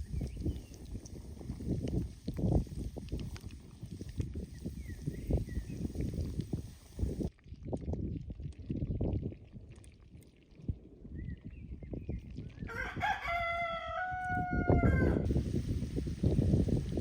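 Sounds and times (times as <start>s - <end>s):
rooster crowing: 12.7s - 15.2s.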